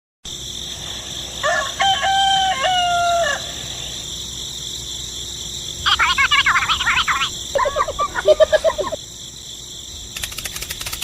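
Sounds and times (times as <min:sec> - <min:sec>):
high-pitched background hiss: 0:00.3 - 0:11.0
rooster crowing: 0:01.4 - 0:03.8.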